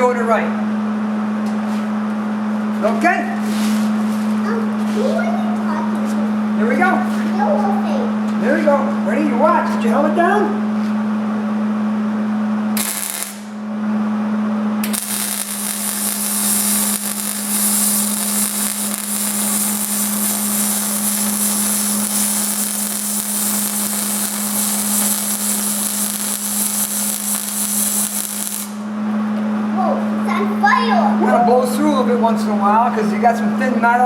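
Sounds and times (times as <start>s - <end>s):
steady hum: 0.0s - 34.0s
arc welding crackle: 12.8s - 13.6s, 14.8s - 28.9s.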